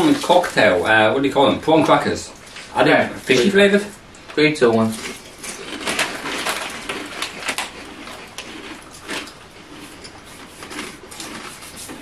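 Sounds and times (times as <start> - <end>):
crackers crunching while chewed: 0.0 - 0.8, 4.8 - 12.0.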